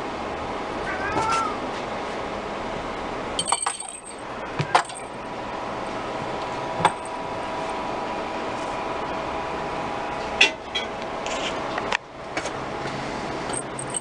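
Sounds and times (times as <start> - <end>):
background hum: 0.0 - 14.0
kitten meowing: 0.9 - 1.6.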